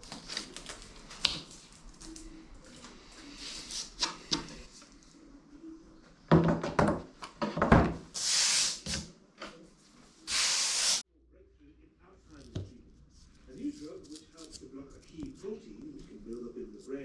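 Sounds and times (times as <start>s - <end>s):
knocks and clatter of handling: 6.3s - 8.0s
short hissing bursts: 8.2s - 9.0s, 10.3s - 11.0s.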